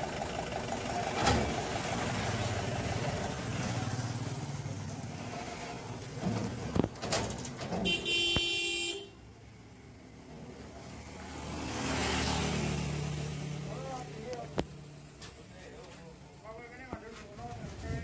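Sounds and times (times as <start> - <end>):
diesel engine rumbling: 0.0 - 11.3
vehicle horn: 7.8 - 9.2.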